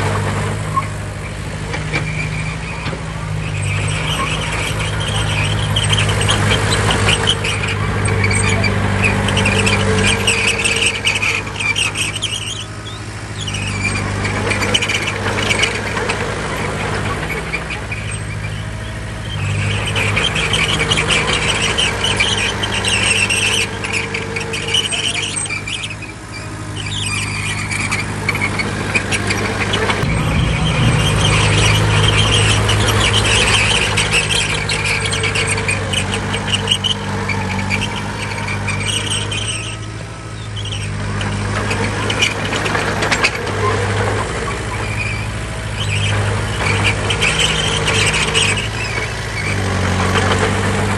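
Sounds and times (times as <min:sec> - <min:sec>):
bulldozer diesel engine running: 0:00.0 - 0:50.9
high-pitched metallic squealing: 0:17.4 - 0:41.0.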